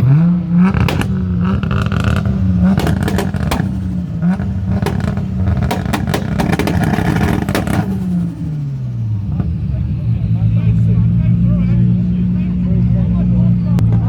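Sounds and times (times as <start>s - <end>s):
car engine revving hard: 0.5s - 8.4s
sharp exhaust pops: 0.6s - 9.6s.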